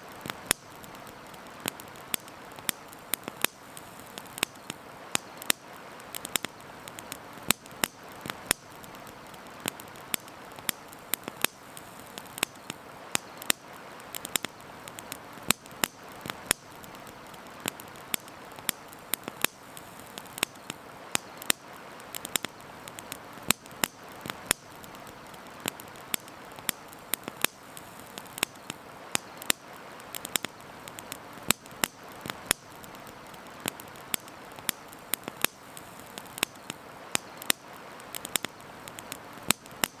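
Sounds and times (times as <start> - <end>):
steady background hiss: 0.0 - 40.0
wood fire crackling and popping: 0.0 - 40.0.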